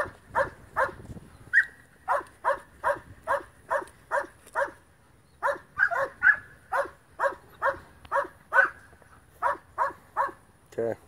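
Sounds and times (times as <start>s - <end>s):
dog barking: 0.0s - 1.0s, 1.6s - 4.8s, 5.4s - 8.8s, 9.4s - 10.4s.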